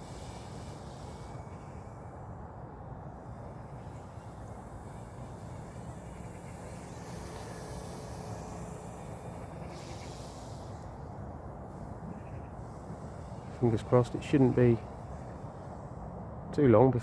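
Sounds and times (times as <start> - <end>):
rc helicopter hovering drone: 0.0 - 17.0.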